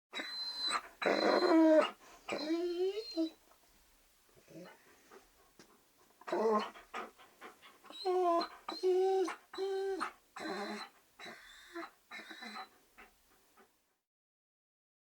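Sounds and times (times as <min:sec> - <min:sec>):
dog crying: 0:00.2 - 0:03.3, 0:06.3 - 0:07.1, 0:07.9 - 0:12.7.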